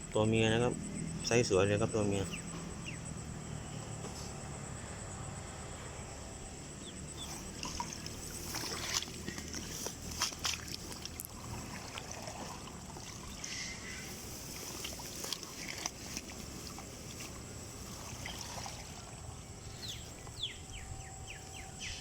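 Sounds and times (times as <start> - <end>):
shallow water sloshing: 6.9 - 22.0
small splashes and clicks: 7.2 - 19.2.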